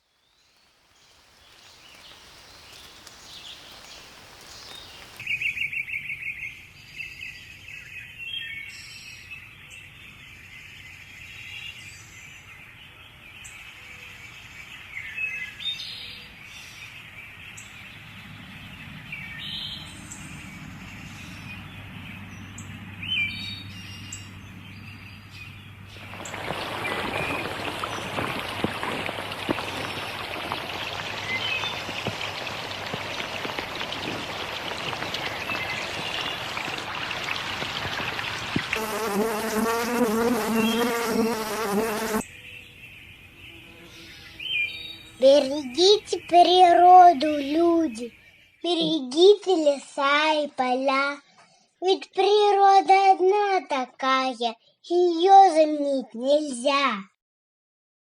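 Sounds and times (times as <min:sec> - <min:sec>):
birds chirping and trilling: 0:00.1 - 0:51.8
rain pattering: 0:00.6 - 0:05.3, 0:25.9 - 0:40.0.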